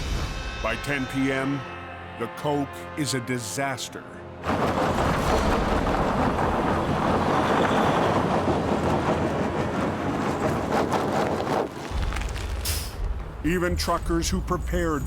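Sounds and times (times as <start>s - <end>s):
heavy truck rumbling: 4.4s - 15.0s.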